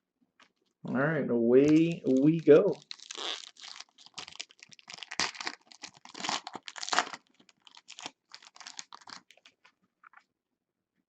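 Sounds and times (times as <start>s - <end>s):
wrapper tearing and crinkling: 1.6s - 9.7s.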